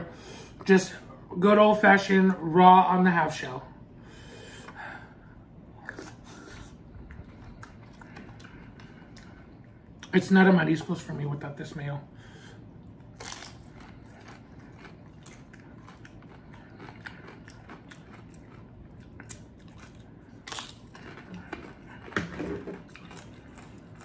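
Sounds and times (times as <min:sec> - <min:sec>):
person chewing crunchy food: 0:05.8 - 0:10.2, 0:12.6 - 0:24.0.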